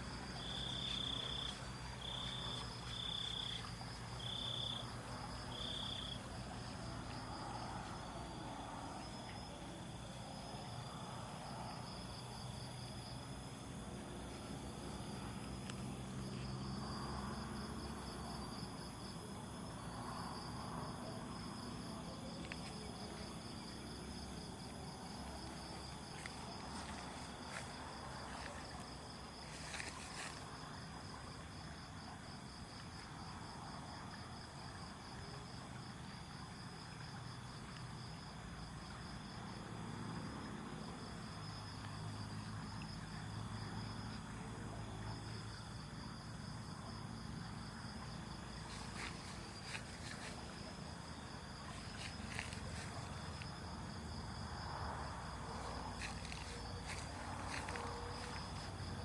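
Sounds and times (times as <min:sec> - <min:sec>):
night insects trilling: 0:00.0 - 0:59.0.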